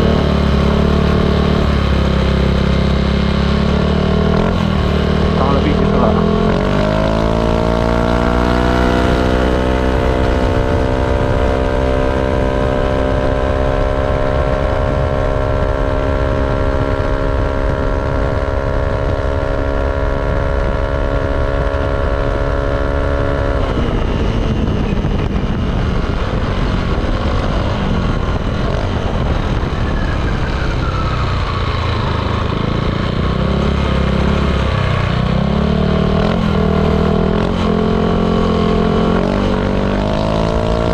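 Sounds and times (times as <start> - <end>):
scooter engine revving: 0.0 - 15.6.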